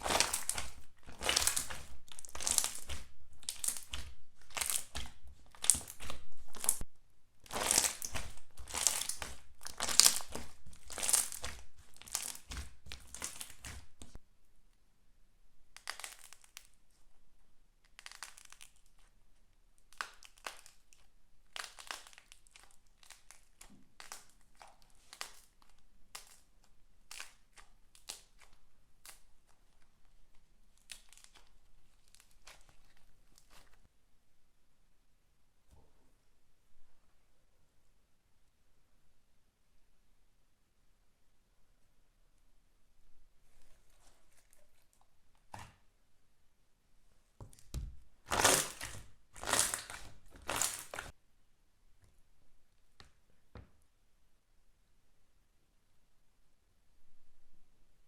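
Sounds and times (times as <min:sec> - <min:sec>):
slime squishing by hand: 0:00.0 - 0:14.2, 0:15.6 - 0:19.2, 0:19.8 - 0:33.9, 0:43.4 - 0:46.0, 0:47.3 - 0:51.2.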